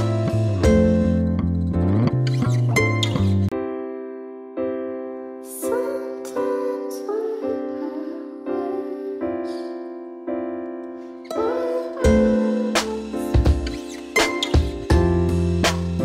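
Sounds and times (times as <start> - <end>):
piano-led background music: 0.0 - 16.0.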